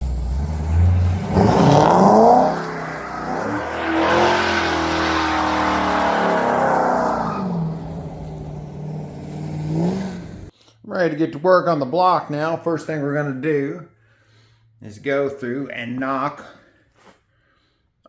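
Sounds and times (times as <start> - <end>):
car engine revving: 0.0 - 10.5.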